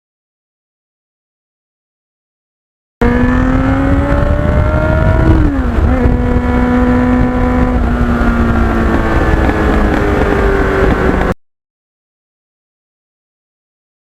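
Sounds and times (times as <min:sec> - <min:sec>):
motorcycle engine accelerating: 0:03.0 - 0:11.4.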